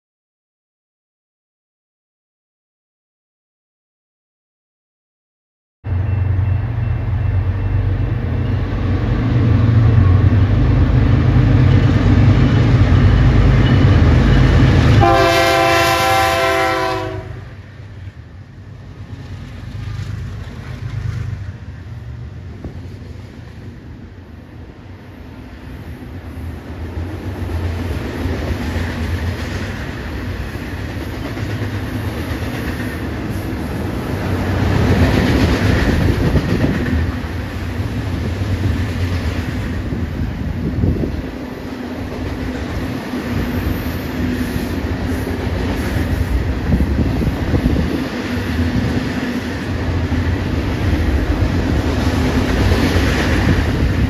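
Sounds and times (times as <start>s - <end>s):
diesel locomotives rumbling: 5.8s - 54.0s
wheels on rail: 5.9s - 54.0s
train horn blast: 14.9s - 17.6s.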